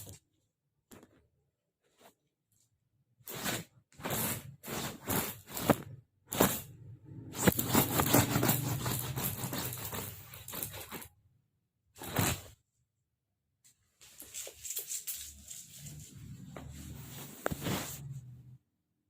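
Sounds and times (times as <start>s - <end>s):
rustling and scraping: 3.3s - 11.1s, 12.0s - 12.6s, 13.7s - 18.5s.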